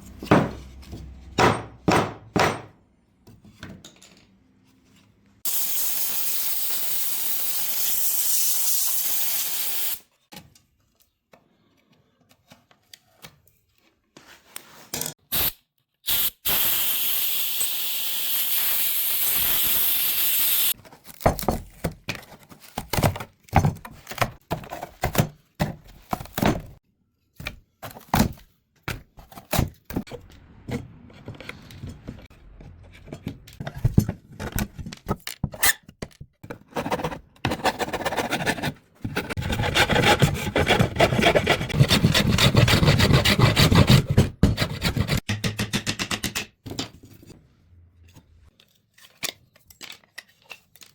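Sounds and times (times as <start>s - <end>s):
hissing spray from a nozzle: 5.5s - 10.0s, 16.1s - 20.7s.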